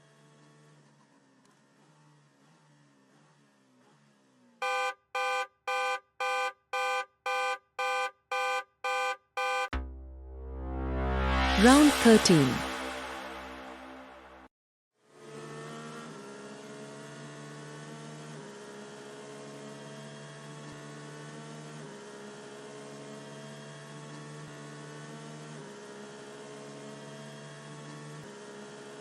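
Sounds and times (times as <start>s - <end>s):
synthesizer drone of held chords: 9.7s - 14.5s.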